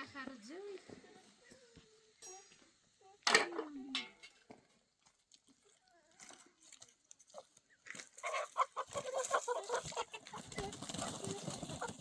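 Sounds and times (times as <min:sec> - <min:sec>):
chickens clucking: 0:05.7 - 0:12.0.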